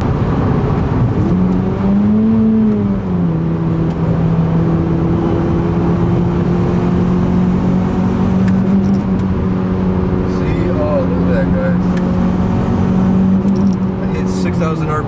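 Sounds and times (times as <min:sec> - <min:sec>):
car engine with leaking exhaust: 0:07.3 - 0:15.0.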